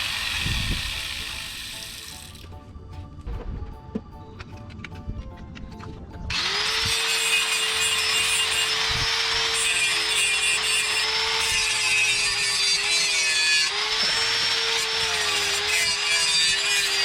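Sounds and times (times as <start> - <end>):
electric grinder grinding steel: 0.0 - 2.6, 6.3 - 17.0.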